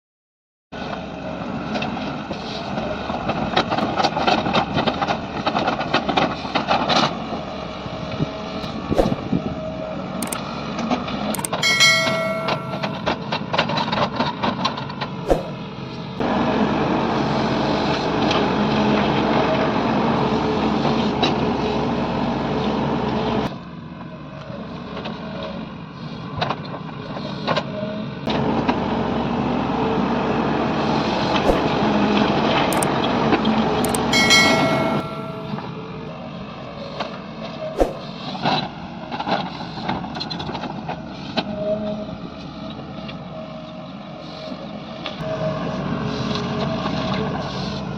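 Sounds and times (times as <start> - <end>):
sharp metal clanks: 11.4 - 13.1, 33.9 - 35.6.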